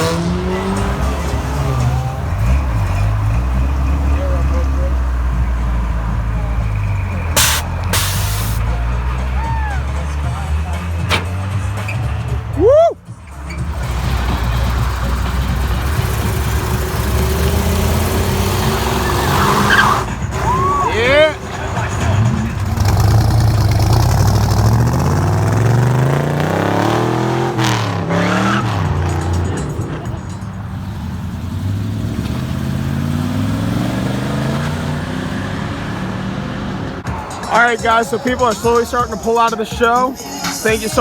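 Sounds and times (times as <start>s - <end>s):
car engine idling: 0.0s - 41.0s.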